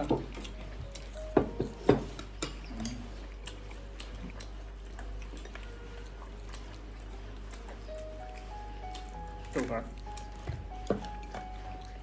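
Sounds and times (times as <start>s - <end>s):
chopsticks clicking on dishes: 0.0s - 4.5s
person chewing: 0.0s - 12.0s.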